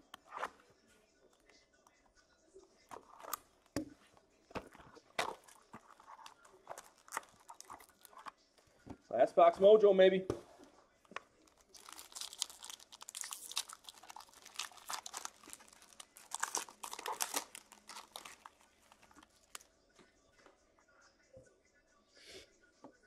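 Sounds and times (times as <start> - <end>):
plastic wrapping crinkling and tearing: 4.6 - 8.3, 11.4 - 19.6.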